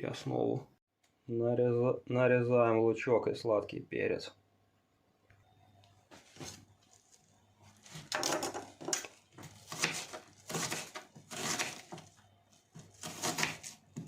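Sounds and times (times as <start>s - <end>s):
knife cutting on cutting board: 7.8s - 12.1s, 12.7s - 14.0s.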